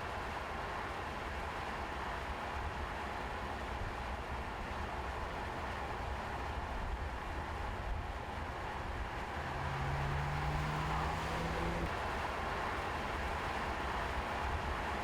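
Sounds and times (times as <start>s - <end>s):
tyre and road noise: 5.6s - 14.8s
car engine rising in pitch: 8.7s - 12.0s.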